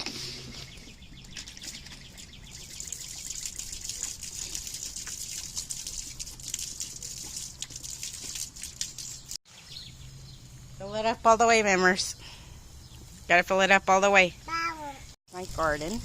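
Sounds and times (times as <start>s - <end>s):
water pouring and splashing: 0.0s - 9.6s.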